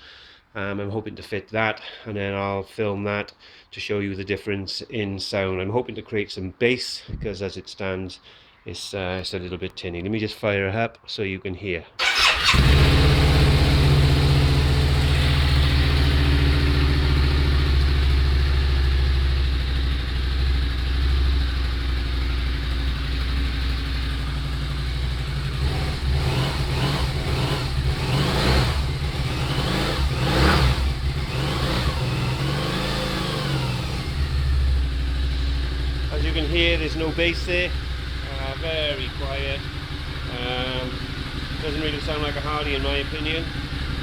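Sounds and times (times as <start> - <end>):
motorcycle engine idling and revving: 12.0 - 44.0.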